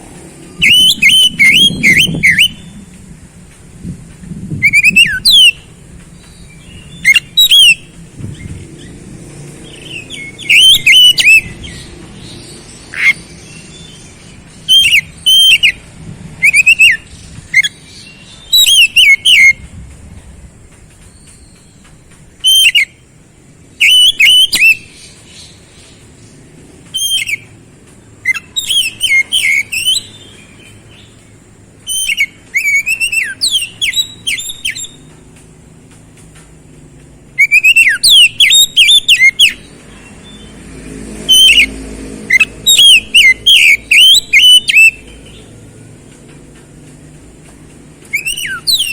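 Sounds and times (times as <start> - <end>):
bird singing whistled phrases: 0.5 - 2.8, 4.6 - 7.9, 9.7 - 11.9, 12.9 - 15.8, 16.4 - 19.6, 22.4 - 23.0, 23.8 - 24.9, 26.9 - 27.5, 28.2 - 31.1, 31.8 - 35.1, 37.4 - 40.4, 41.3 - 41.7, 42.3 - 45.5, 48.1 - 48.9.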